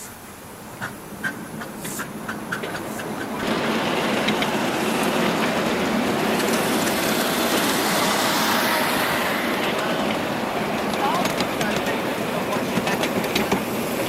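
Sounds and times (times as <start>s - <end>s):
train rushing noise: 0.0s - 14.0s
wheel clicks: 10.8s - 13.7s.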